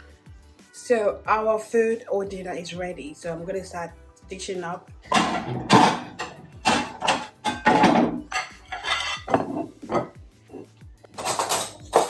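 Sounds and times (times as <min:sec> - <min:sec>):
spoon knocking against a pot: 0:05.1 - 0:10.2.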